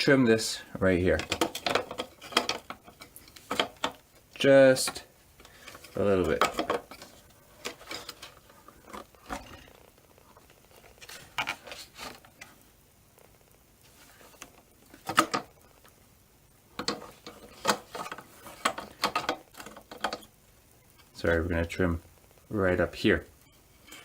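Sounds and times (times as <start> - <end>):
plastic parts clicking and knocking: 1.1 - 4.0, 4.8 - 9.7, 14.9 - 15.5, 16.8 - 20.3.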